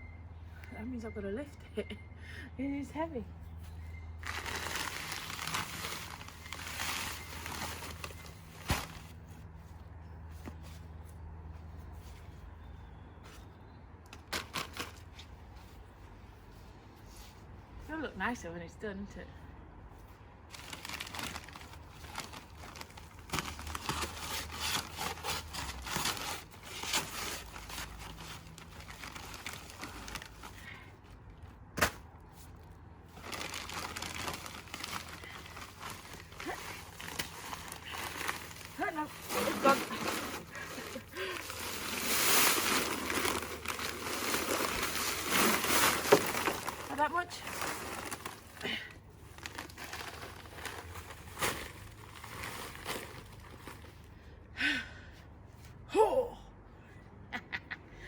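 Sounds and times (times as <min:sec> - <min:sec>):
gritty crunching and scraping: 0:03.6 - 0:11.2, 0:20.5 - 0:54.2
bag crinkling: 0:04.2 - 0:09.3, 0:20.5 - 0:30.7, 0:33.1 - 0:54.1.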